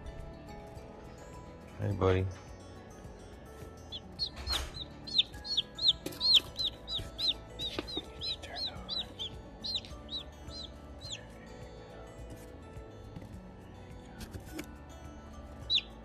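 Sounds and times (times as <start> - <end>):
chick peeping: 3.8 - 11.3, 15.6 - 16.0.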